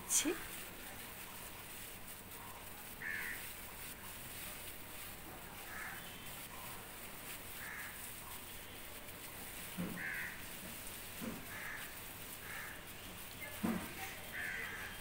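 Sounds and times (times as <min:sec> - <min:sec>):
bird cawing: 0:03.0 - 0:03.5, 0:05.6 - 0:06.2, 0:07.6 - 0:08.1, 0:09.9 - 0:10.6, 0:11.4 - 0:12.9, 0:14.3 - 0:15.0.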